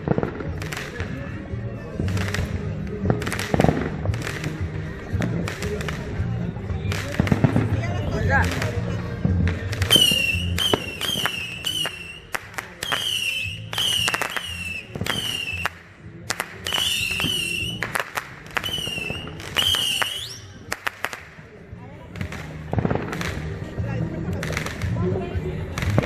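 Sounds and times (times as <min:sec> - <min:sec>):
firework cracks: 0:00.0 - 0:01.2, 0:02.0 - 0:21.5, 0:22.2 - 0:23.7
high firework whistle: 0:09.9 - 0:15.8, 0:16.6 - 0:17.9, 0:18.6 - 0:20.6.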